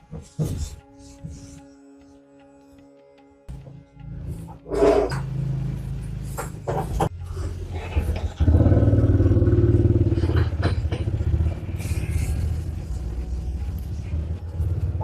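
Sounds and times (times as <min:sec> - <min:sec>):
vehicle engine running: 0:05.4 - 0:15.0.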